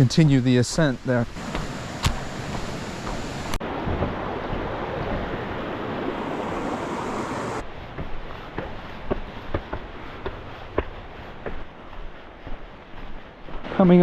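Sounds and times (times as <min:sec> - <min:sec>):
waterfall rushing: 0:01.1 - 0:07.6.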